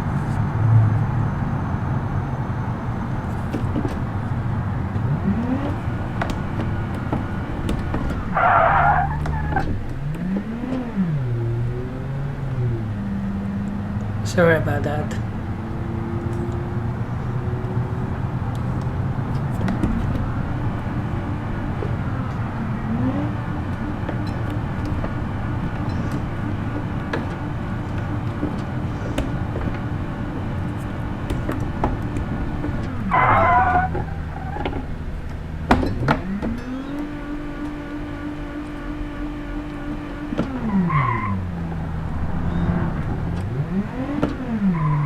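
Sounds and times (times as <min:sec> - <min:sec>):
minivan engine revving: 0:00.0 - 0:45.0
wavering squeal: 0:06.7 - 0:13.2, 0:20.2 - 0:35.0, 0:36.2 - 0:45.0.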